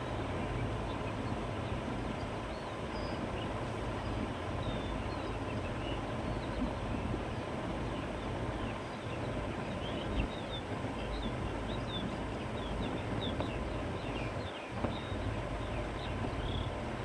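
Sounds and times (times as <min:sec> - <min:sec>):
wind through grass and trees: 0:00.0 - 0:17.0
small birds chirping: 0:07.8 - 0:16.8.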